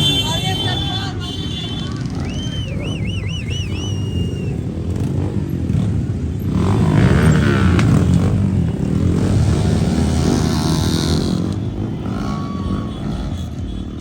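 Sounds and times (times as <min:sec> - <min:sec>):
vehicle engine passing: 0:00.0 - 0:13.7
whistle note: 0:02.1 - 0:04.7.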